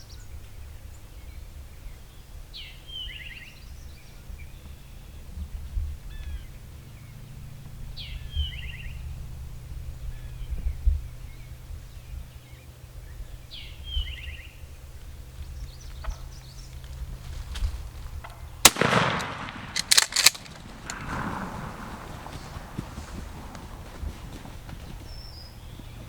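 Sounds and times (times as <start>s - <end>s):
shotgun shot with echo: 18.6s - 22.1s.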